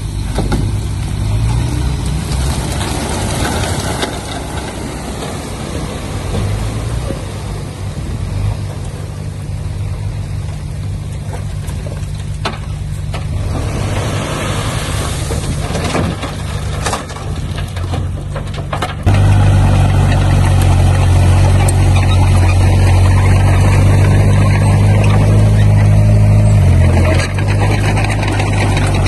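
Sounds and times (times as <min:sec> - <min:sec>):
knocks and rattles: 0:00.0 - 0:07.4, 0:15.2 - 0:29.0
diesel engine of heavy machinery: 0:00.0 - 0:29.0.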